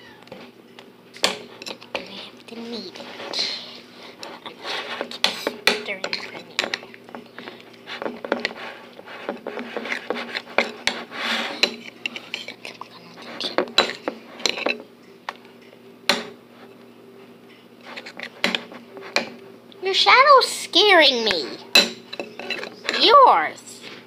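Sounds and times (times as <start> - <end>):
utensil stirring slime in bowl: 1.3 - 14.8, 17.8 - 19.3
utensil clinking against bowl: 5.2 - 7.3, 21.7 - 23.0.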